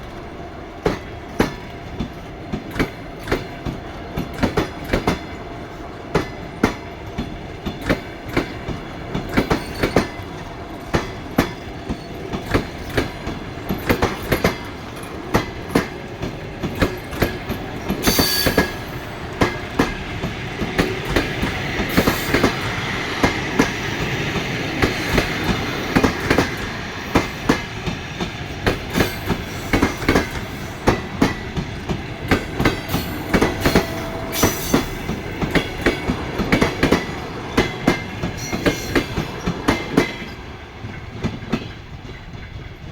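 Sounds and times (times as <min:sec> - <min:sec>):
train wheels clacking on rails: 0:00.0 - 0:42.9
train hiss and squeal: 0:09.2 - 0:40.4.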